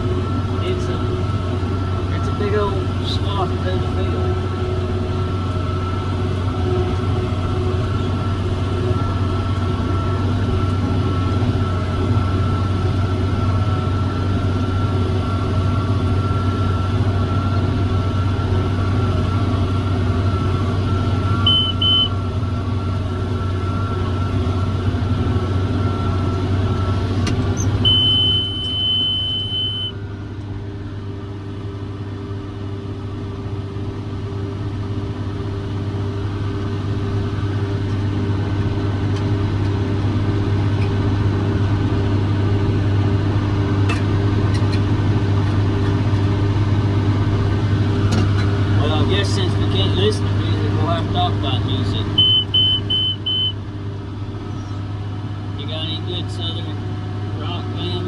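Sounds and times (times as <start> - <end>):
baler whine: 0.0 - 58.0
tractor engine hum: 0.0 - 58.0
electronic beeps: 21.3 - 22.2, 27.8 - 30.0, 52.1 - 53.6.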